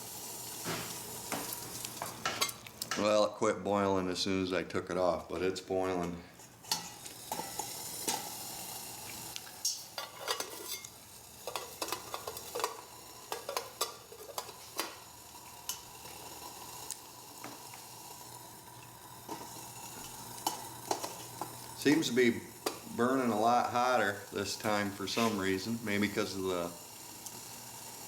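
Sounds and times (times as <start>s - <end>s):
pellet stove burning: 0.0s - 28.0s
sharp crackles and ticks: 7.0s - 9.8s, 10.7s - 28.0s.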